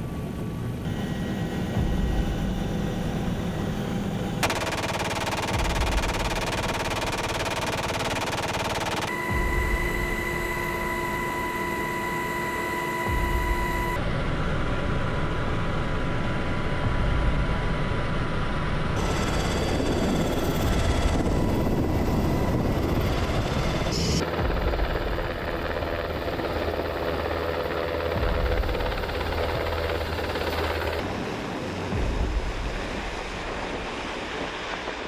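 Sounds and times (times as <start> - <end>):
helicopter rotor and turbine: 0.0 - 35.0.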